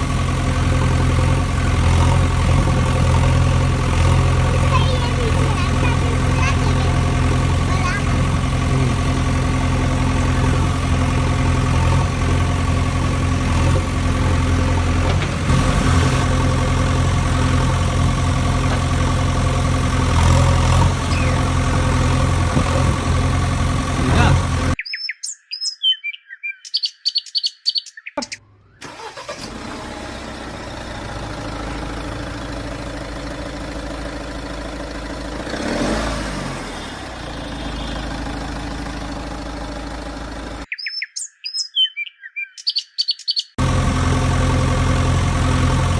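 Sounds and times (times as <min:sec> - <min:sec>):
heavy vehicle engine running: 0:00.0 - 0:24.8, 0:28.8 - 0:40.7, 0:43.6 - 0:45.9
high bird chirps: 0:21.0 - 0:21.5, 0:24.8 - 0:28.8, 0:40.7 - 0:43.6.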